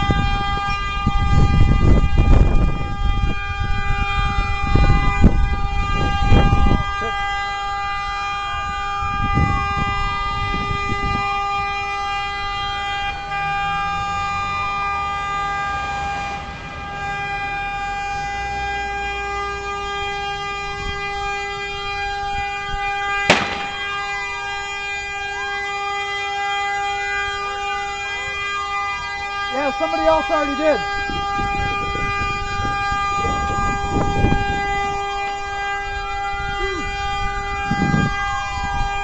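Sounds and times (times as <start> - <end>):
emergency siren wailing: 0.0 - 39.0
sharp crack: 23.2 - 24.0.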